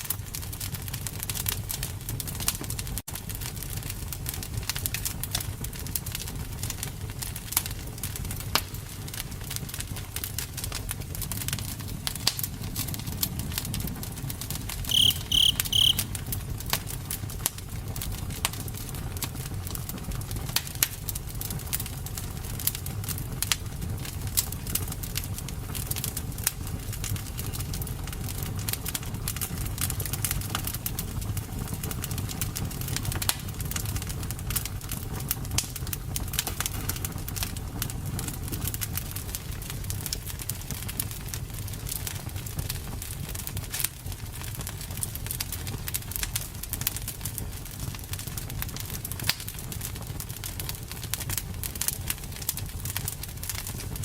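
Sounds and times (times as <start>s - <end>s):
low rumble of flames: 0.0s - 15.0s, 15.8s - 54.0s
campfire crackling and popping: 0.0s - 54.0s
short high chirps: 14.9s - 16.1s.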